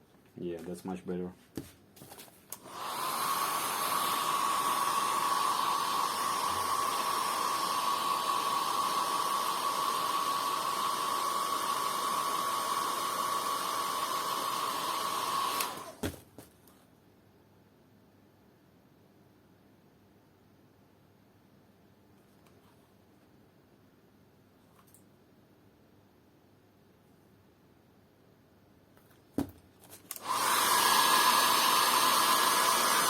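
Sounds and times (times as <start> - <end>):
hair dryer whining: 2.5 - 16.2, 30.1 - 33.0.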